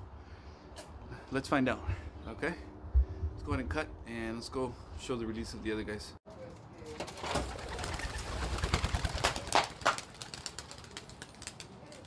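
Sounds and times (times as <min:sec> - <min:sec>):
pigeon wingbeats: 0:06.9 - 0:12.0.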